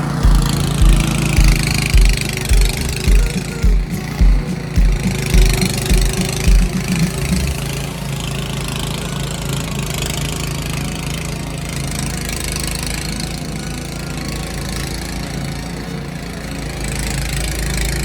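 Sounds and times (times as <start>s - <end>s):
low thumping beat: 0.0s - 7.8s
engine idling: 0.0s - 8.2s.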